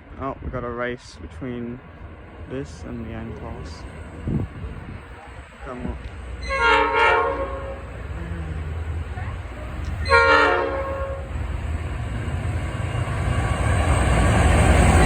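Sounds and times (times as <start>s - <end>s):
train rumble: 0.0s - 15.0s
train horn blasts: 6.4s - 8.1s, 10.0s - 11.4s.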